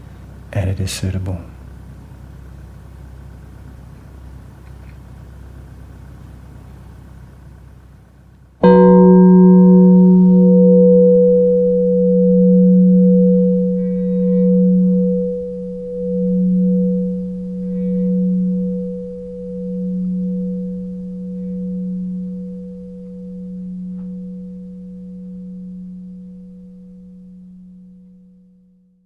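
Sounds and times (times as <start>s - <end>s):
singing bowl ringing: 8.6s - 29.0s.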